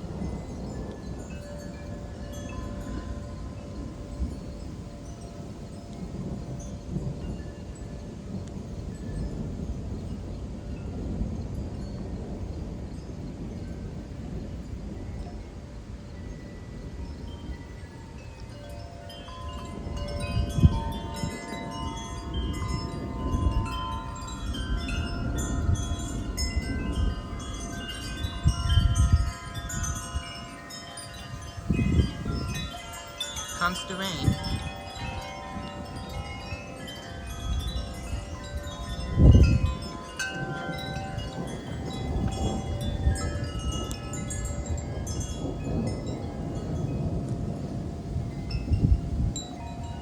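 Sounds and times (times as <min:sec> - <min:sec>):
wind chimes ringing: 0:00.0 - 0:50.0
wind rumbling on microphone: 0:00.0 - 0:50.0.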